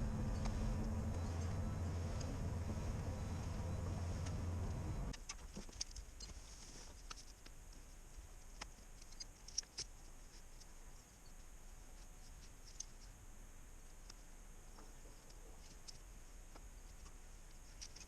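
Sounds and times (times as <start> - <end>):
diesel engine rumble: 0.0 - 5.1.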